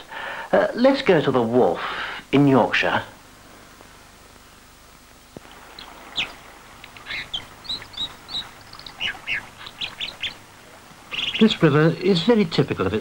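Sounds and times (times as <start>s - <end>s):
faint hiss: 0.0s - 13.0s
songbirds chirping and whistling: 5.6s - 12.0s.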